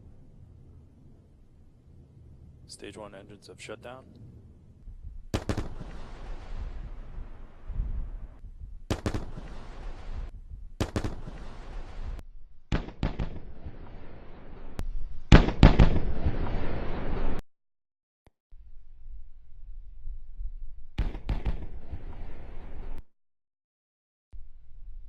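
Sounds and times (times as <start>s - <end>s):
sonic boom cracks and rumble: 4.1s - 17.4s.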